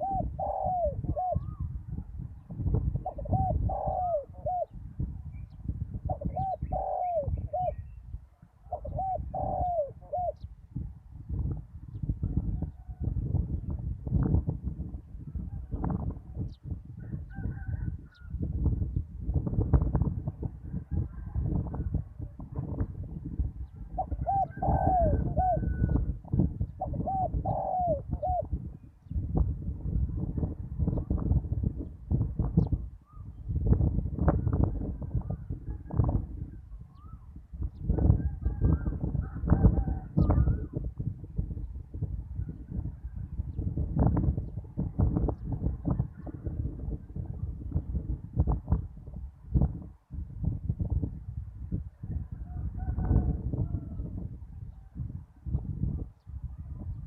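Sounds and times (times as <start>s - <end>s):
dove cooing: 0.0s - 1.7s, 3.0s - 4.8s, 6.1s - 8.0s, 8.7s - 10.5s, 23.9s - 26.1s, 26.8s - 28.6s.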